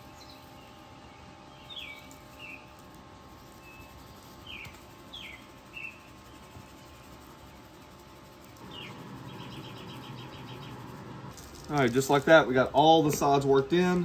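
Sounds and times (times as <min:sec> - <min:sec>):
bird chirping: 0:00.0 - 0:02.7, 0:03.5 - 0:07.0, 0:08.6 - 0:11.3
faint steady hum: 0:00.0 - 0:14.0.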